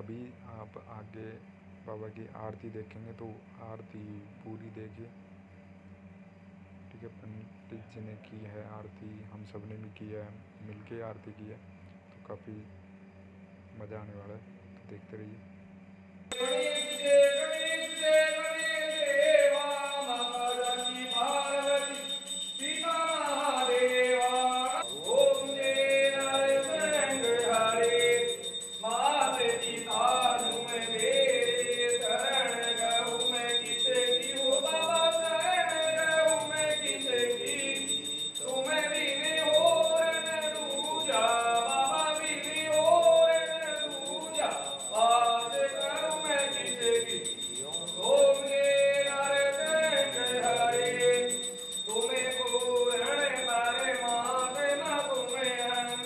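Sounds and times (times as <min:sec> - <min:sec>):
bells ringing: 0:16.3 - 0:56.0
voices singing a hymn: 0:16.3 - 0:56.0.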